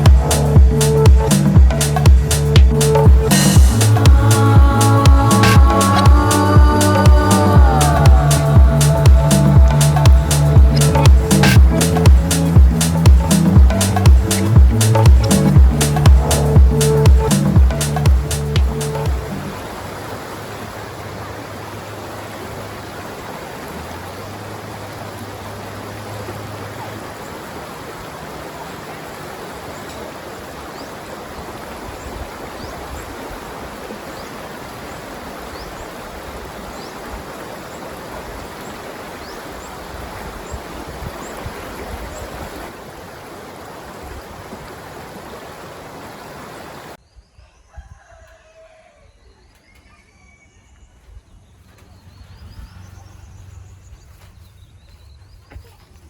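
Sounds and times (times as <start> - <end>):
steady rushing noise: 0.0 - 21.1
outdoor ambience: 0.0 - 56.0.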